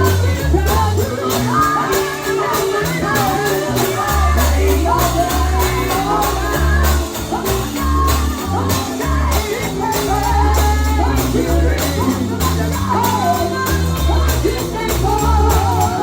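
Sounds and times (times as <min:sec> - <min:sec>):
bass line: 0:00.0 - 0:16.0
gospel singing: 0:00.0 - 0:16.0
percussion beat: 0:00.0 - 0:16.0.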